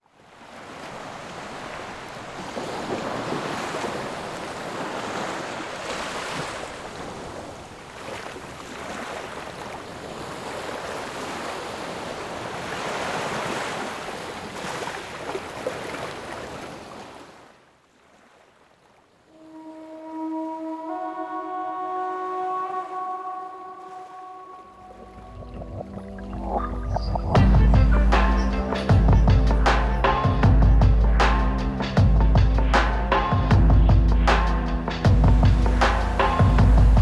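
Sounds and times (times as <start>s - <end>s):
sea surf washing onto beach: 0.2s - 17.5s.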